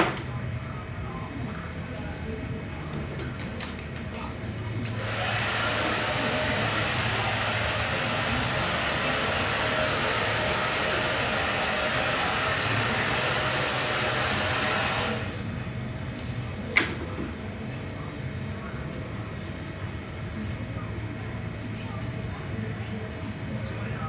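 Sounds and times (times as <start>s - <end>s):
hair dryer blowing: 4.9s - 15.5s.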